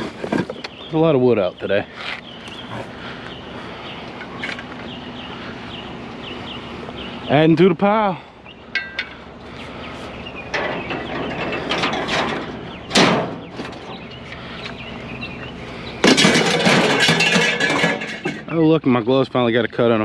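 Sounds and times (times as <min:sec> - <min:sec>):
scrap items scraping and rustling: 0:00.0 - 0:00.7, 0:10.0 - 0:14.0, 0:16.0 - 0:18.5.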